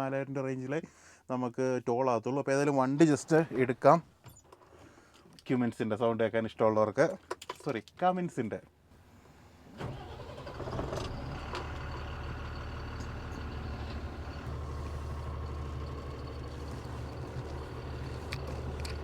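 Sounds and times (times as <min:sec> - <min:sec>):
diesel truck engine droning: 0:09.8 - 0:19.0.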